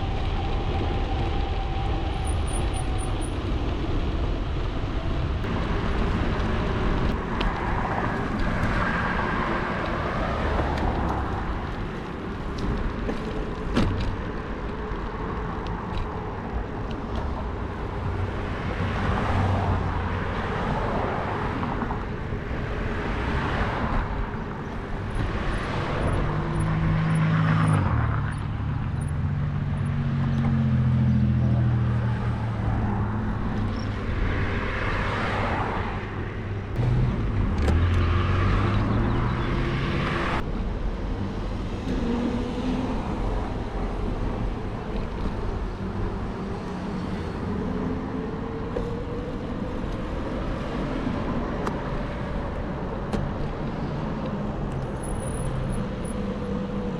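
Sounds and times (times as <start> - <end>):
cars passing: 0.0 - 56.9
traffic rumble: 0.0 - 56.9
vehicle engine humming: 0.0 - 56.9.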